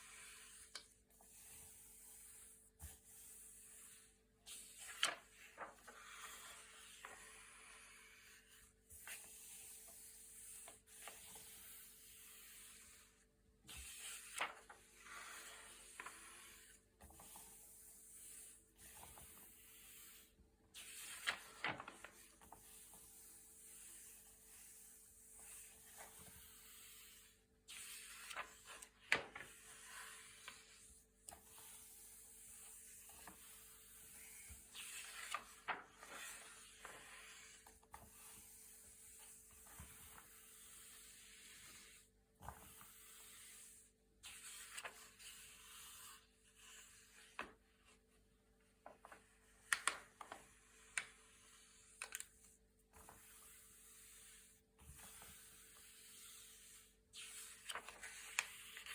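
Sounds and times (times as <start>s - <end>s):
paper pages turning: 4.6s - 7.4s, 13.8s - 17.5s, 20.8s - 22.8s, 27.8s - 30.6s, 34.2s - 37.4s, 49.0s - 50.4s, 57.2s - 58.9s.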